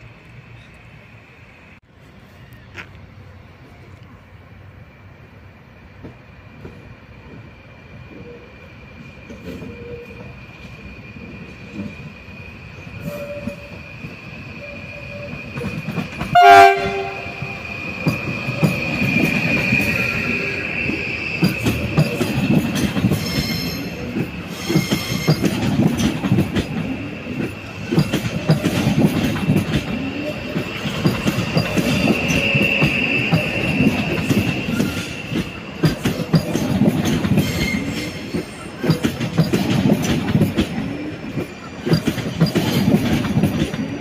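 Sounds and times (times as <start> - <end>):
train wheels squealing on rails: 0.0 - 4.3, 6.1 - 44.0
train wheels clattering over rail joints: 15.2 - 44.0
train horn blast: 16.3 - 17.6.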